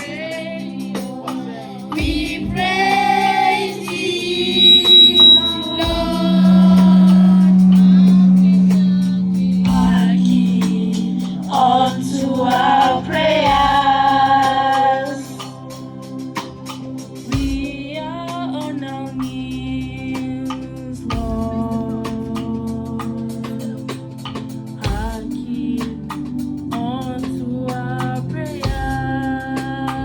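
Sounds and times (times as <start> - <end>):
choir singing gospel: 0.0 - 30.0
long held low note: 4.5 - 13.4.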